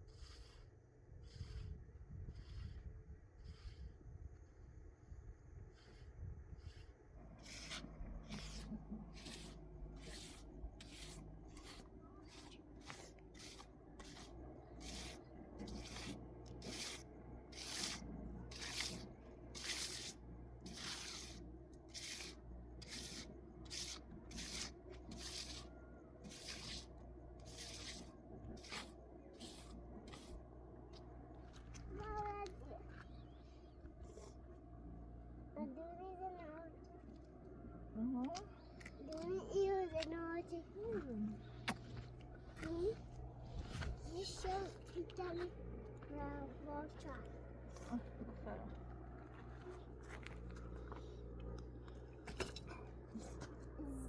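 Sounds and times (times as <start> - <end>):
rhythmic scraping strokes: 7.4 - 31.0.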